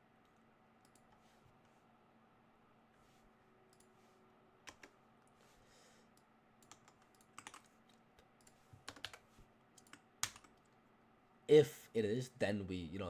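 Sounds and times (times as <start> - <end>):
computer keyboard typing: 4.7 - 4.9, 6.6 - 7.7, 8.4 - 9.2, 9.8 - 10.7.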